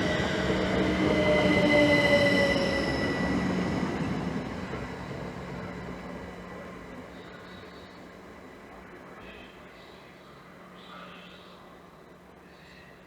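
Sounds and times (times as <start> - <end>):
train squealing whine: 0.0 - 6.4
train rumble: 0.0 - 11.0.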